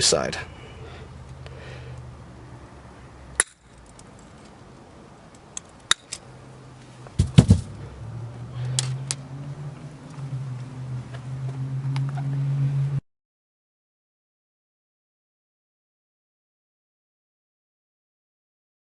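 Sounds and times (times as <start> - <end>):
knocks: 7.2 - 7.7.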